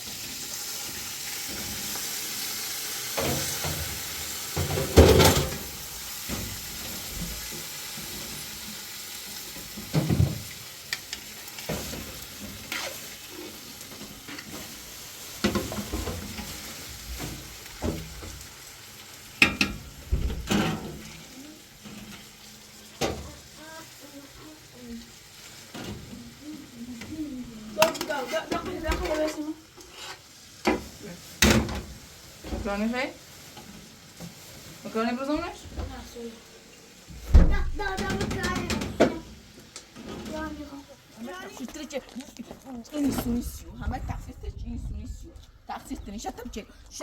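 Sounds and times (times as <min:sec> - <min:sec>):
food sizzling in a pan: 0:00.0 - 0:43.6
utensils knocking against pan: 0:04.6 - 0:06.6, 0:15.4 - 0:16.6, 0:19.4 - 0:21.1, 0:27.8 - 0:29.3, 0:37.8 - 0:39.2.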